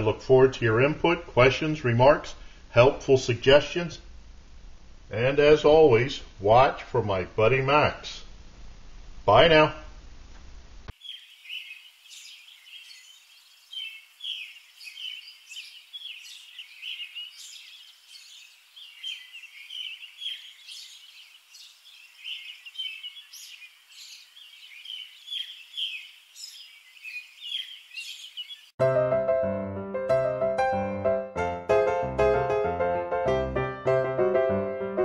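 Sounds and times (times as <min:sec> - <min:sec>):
faint hiss: 0:01.2 - 0:26.7
birds chirping: 0:10.9 - 0:28.8.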